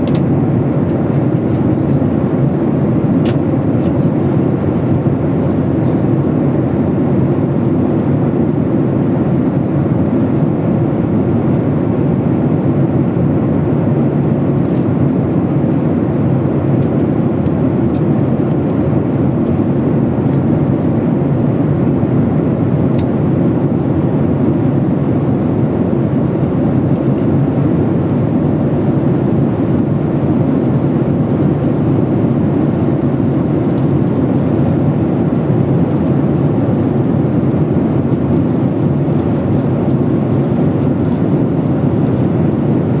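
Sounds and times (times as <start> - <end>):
airliner cabin engine noise: 0.0 - 43.0.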